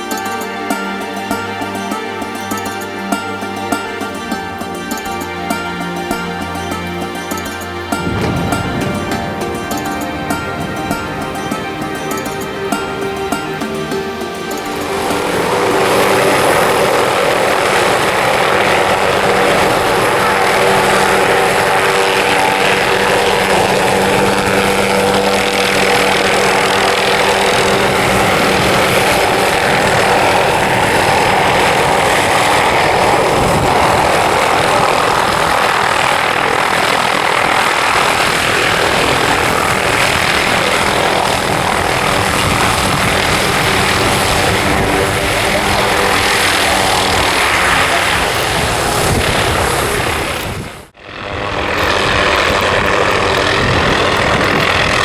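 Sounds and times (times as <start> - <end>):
helicopter engine and rotor hum: 0.0 - 55.0
rushing noise: 0.0 - 55.0.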